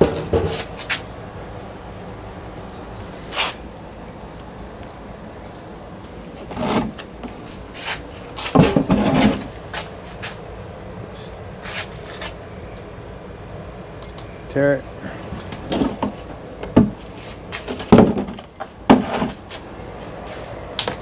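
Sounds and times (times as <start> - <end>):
steady background noise: 0.0 - 21.0
metal parts knocking and scraping: 20.8 - 21.0.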